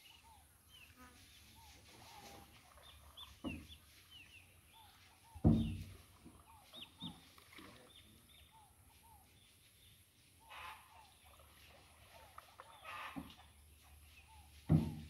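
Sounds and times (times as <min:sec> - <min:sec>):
faint bird chirps: 0:00.0 - 0:14.7.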